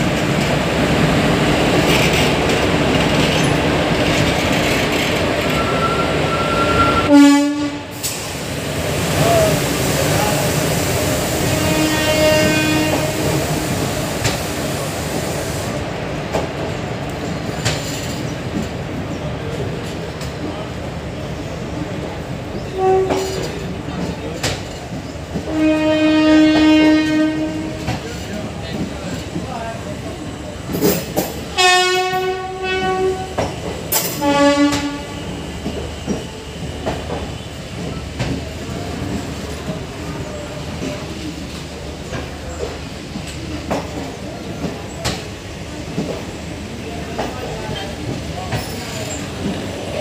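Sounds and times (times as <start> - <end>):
train wheels rumbling on track: 0.0 - 50.0
train horn blasts: 5.6 - 8.0, 11.4 - 13.6, 22.7 - 23.4, 25.5 - 27.8, 31.6 - 33.4, 34.2 - 35.3.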